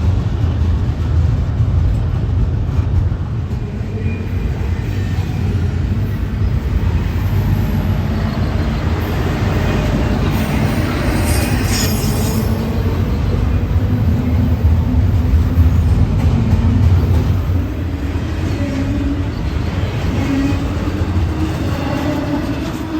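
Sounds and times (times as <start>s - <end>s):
freight train rumbling past: 0.0s - 22.9s
metallic wheel squeal: 4.7s - 13.0s.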